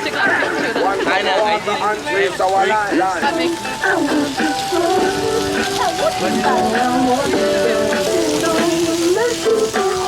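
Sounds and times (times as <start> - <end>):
music with gliding melody: 3.2 - 10.0.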